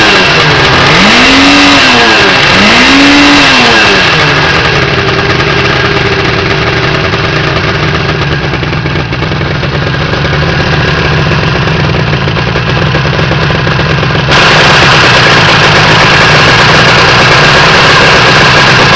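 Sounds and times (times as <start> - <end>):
two-stroke motorcycle engine idling: 0.0 - 18.9.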